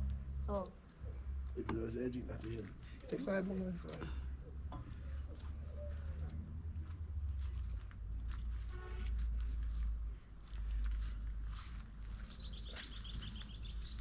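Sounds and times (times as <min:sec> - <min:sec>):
bird high chirps: 0:12.1 - 0:14.0.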